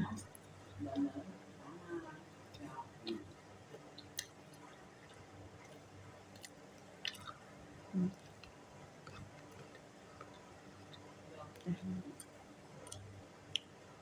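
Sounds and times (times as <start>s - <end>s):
mouth chewing food: 2.4s - 13.8s
wet mouth clicks and smacks: 6.4s - 7.4s.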